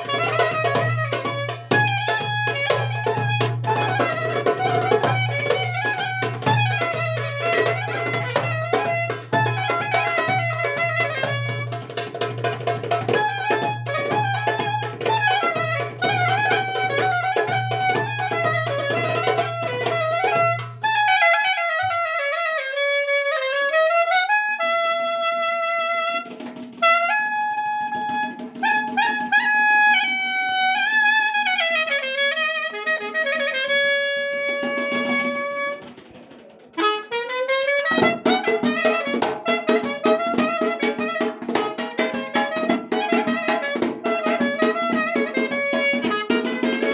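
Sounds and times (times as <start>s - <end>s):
driving drum rhythm: 0.0s - 20.9s, 37.8s - 46.9s.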